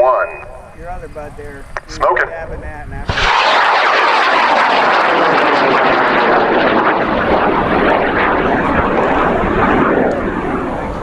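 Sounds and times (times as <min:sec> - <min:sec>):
rocket motor roaring: 0:03.0 - 0:11.0.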